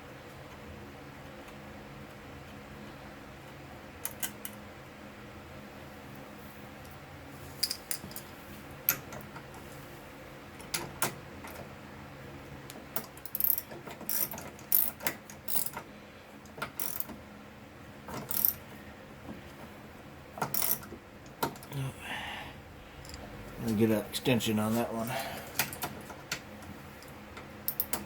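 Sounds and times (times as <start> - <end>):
hand ratchet clicking: 13.0 - 15.8, 16.6 - 17.1, 18.2 - 18.6, 20.4 - 20.9
tool clinking: 27.7 - 28.0.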